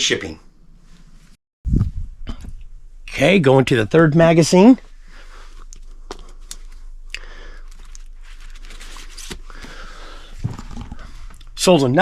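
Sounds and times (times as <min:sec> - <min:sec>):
magazines rustling: 0:05.4 - 0:11.6.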